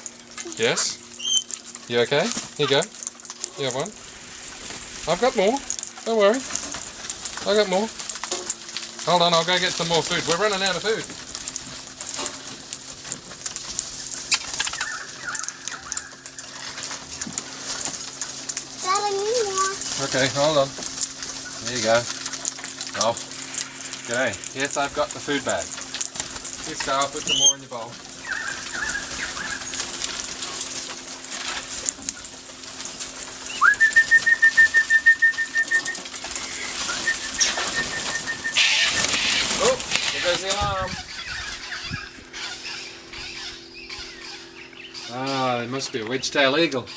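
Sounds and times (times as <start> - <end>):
parrots fluttering: 0.0 - 46.7
wild birds calling: 0.0 - 46.9
thin chirping call: 1.1 - 1.7, 14.3 - 16.7, 27.1 - 30.0, 33.5 - 46.9.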